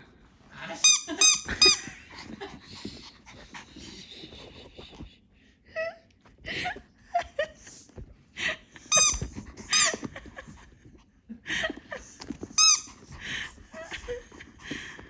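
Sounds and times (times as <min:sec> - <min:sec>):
squeaky toy squeaking: 0:00.8 - 0:01.9, 0:08.9 - 0:10.0, 0:12.6 - 0:13.0
dog chewing toy: 0:12.2 - 0:13.2.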